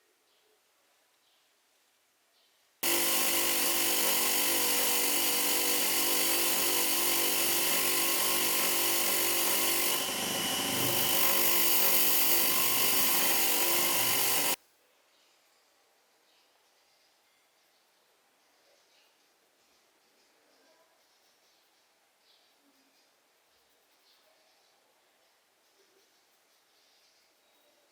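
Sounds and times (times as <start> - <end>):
small electric power tool running: 2.8 - 14.6.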